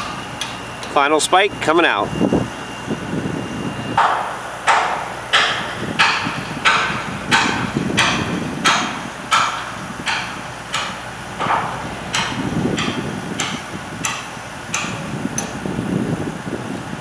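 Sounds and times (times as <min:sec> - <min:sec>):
hammer striking steel: 0:04.0 - 0:15.0.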